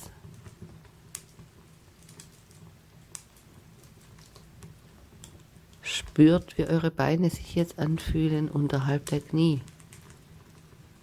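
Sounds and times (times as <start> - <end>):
sharp pops from fire: 0.0 - 6.6, 9.0 - 11.0
wood fire crackling: 0.0 - 11.0.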